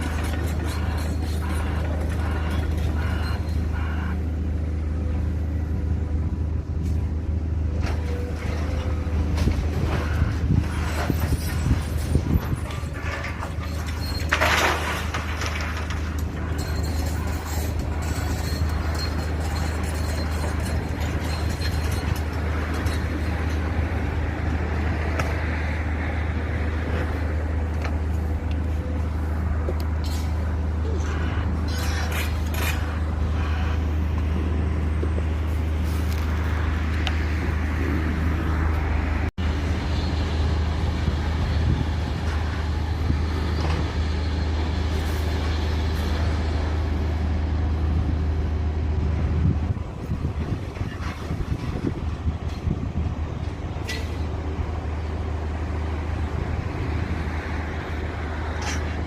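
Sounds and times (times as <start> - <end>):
low engine-like rumble: 0.0 - 59.0
knocks and clatter: 7.8 - 23.8.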